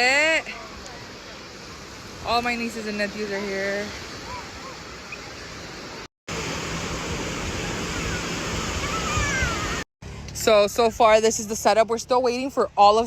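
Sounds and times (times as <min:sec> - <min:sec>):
surf washing on shore: 0:00.0 - 0:09.8
wind: 0:00.0 - 0:13.0
distant children calling: 0:03.2 - 0:05.6, 0:07.6 - 0:09.8.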